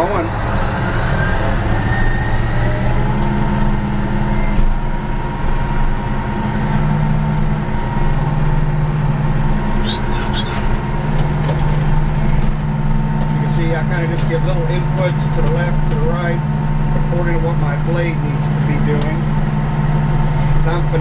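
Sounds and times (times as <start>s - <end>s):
bulldozer diesel engine under load: 0.0s - 21.0s
short high squeaks: 9.8s - 10.8s.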